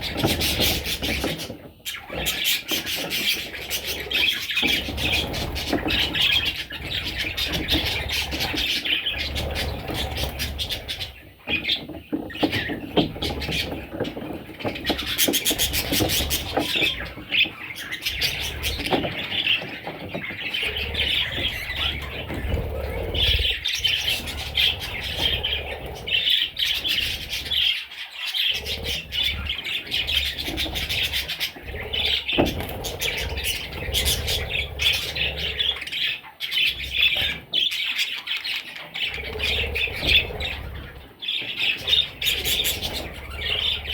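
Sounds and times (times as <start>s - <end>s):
budgerigars chattering: 0.0s - 43.9s.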